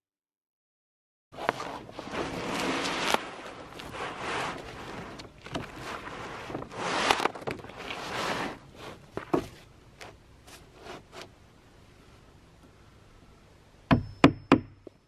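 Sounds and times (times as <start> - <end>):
roofing sheet rustling: 1.3 - 11.4.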